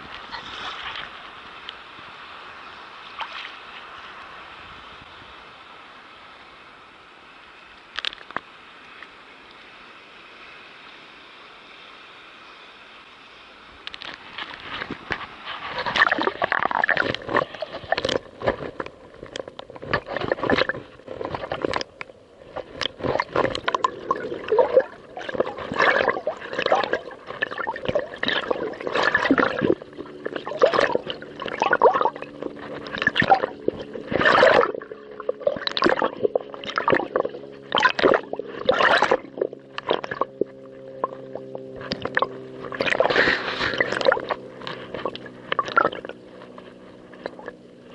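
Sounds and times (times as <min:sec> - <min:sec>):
droning hum: 0:03.8 - 0:47.9
waves slapping against hull: 0:13.9 - 0:47.9.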